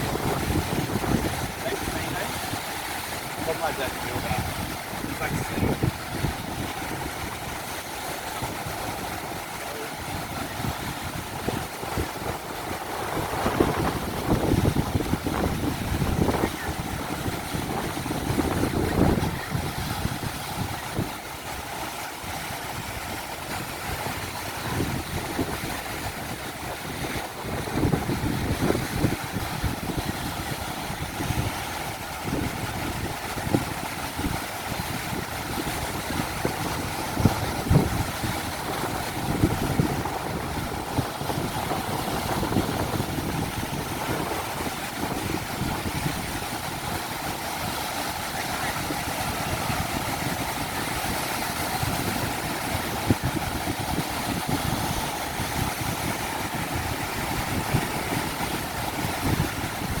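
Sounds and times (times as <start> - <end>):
ocean surf: 0.0 - 60.0
wind buffeting microphone: 0.0 - 60.0.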